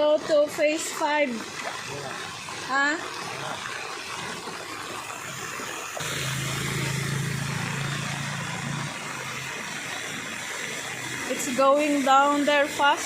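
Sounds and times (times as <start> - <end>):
floodwater rushing: 0.0 - 13.0
vehicle engine humming: 6.0 - 10.2.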